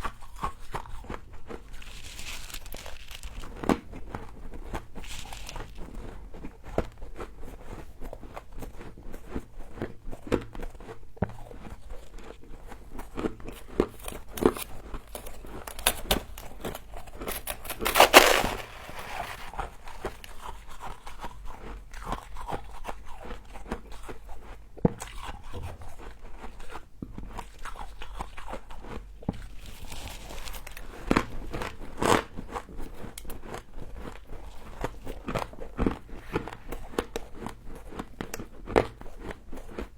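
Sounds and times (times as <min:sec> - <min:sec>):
person chewing crunchy frost: 0:12.1 - 0:22.5.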